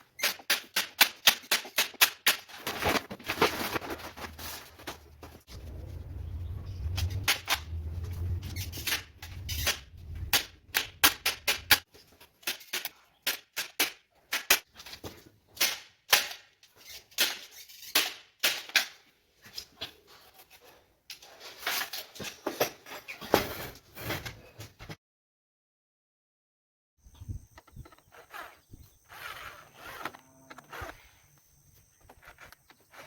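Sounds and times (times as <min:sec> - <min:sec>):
low hum: 0:05.5 - 0:10.3.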